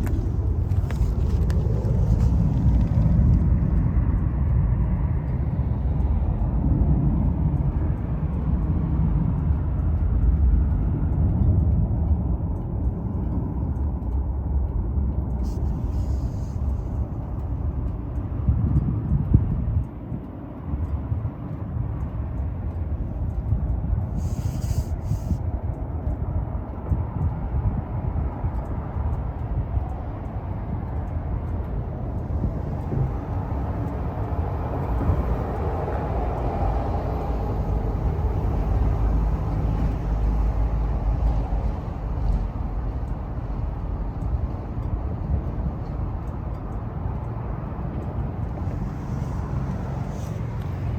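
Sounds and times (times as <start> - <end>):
wind rush: 0.0 - 8.4, 26.4 - 44.1, 46.5 - 50.9.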